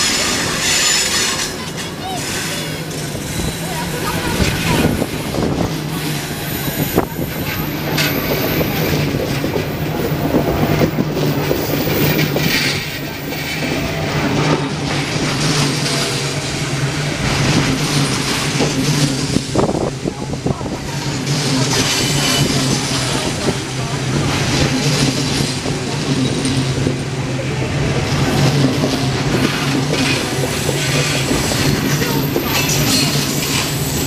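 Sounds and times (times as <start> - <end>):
train rolling past: 0.0 - 34.0
wheels clattering over rail joints: 0.0 - 34.0.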